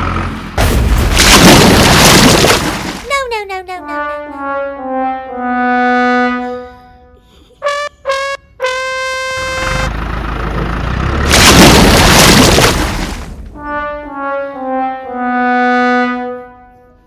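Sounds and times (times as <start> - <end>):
brass-style background music: 3.8 - 6.7, 7.6 - 10.0, 13.6 - 17.0.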